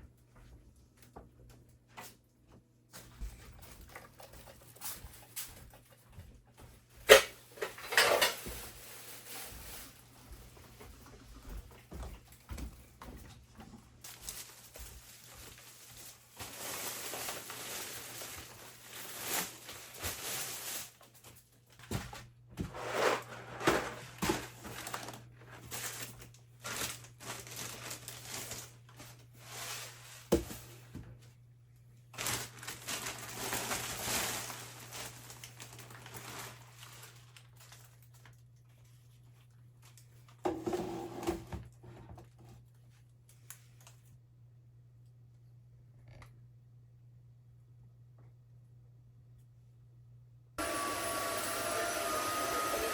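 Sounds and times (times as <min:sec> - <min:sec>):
plastic rustling and crinkling: 0:03.0 - 0:31.4, 0:32.0 - 0:40.4.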